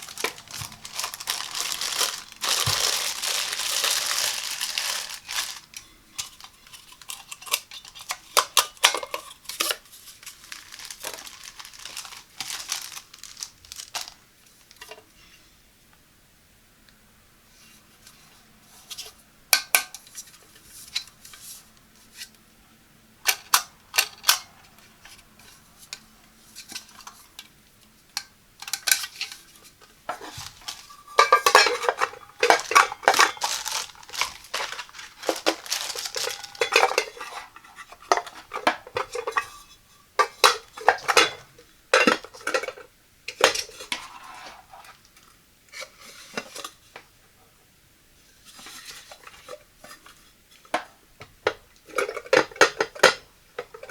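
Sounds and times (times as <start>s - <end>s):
rattling and scraping: 30.1s - 39.6s
cooker parts clinking: 30.1s - 43.8s.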